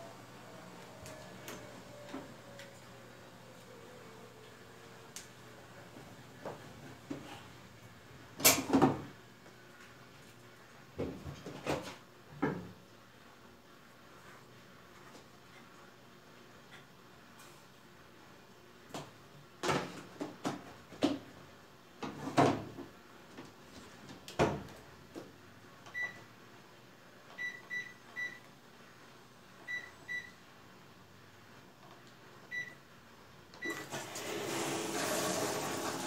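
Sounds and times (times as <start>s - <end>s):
washing machine short beeps: 25.9s - 26.2s, 27.4s - 28.4s, 29.7s - 30.4s, 32.5s - 32.8s, 33.6s - 33.9s
washing machine water rushing: 33.7s - 36.0s.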